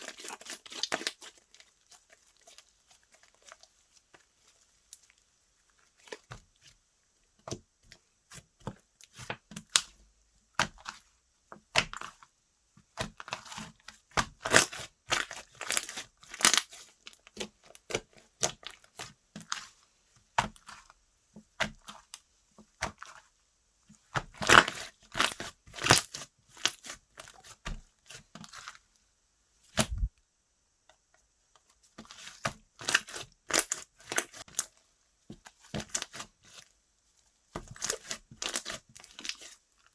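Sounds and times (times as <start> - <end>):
hands squishing slime: 0.0 - 5.2, 10.6 - 22.1, 29.8 - 30.1, 31.9 - 34.7, 35.4 - 36.6, 37.5 - 39.6.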